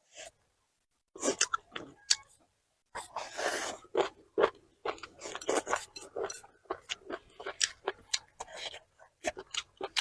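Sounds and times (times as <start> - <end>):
crisp crunching and chewing: 3.7 - 10.0.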